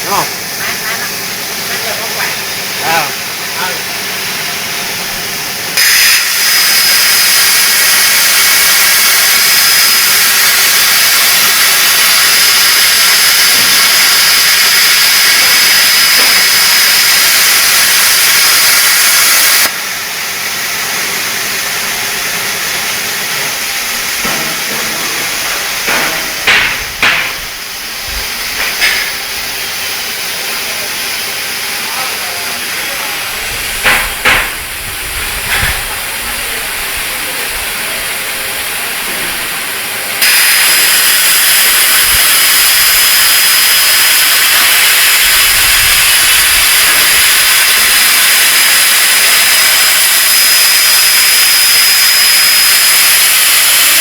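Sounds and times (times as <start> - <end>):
plasma cutter hissing and whining: 0.0 - 54.0
sharp knocks: 25.9 - 27.4, 33.8 - 34.6
steady hiss: 31.8 - 54.0.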